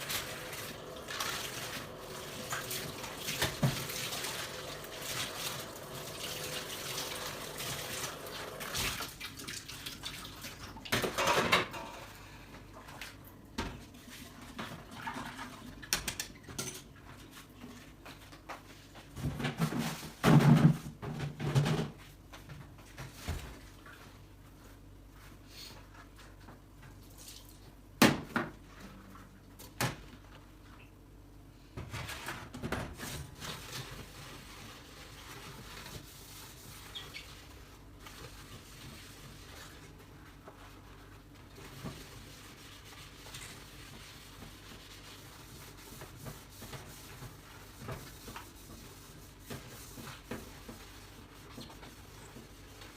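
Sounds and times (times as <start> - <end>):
tap running: 0.0 - 8.8
heavy clatter of dishes: 11.0 - 12.1.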